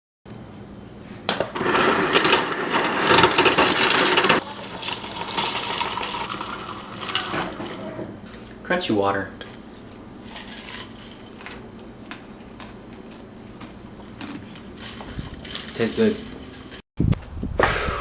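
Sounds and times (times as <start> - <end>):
ice rattling into cup: 1.5 - 7.9, 10.2 - 11.6, 14.3 - 16.8
water pouring: 2.7 - 8.1.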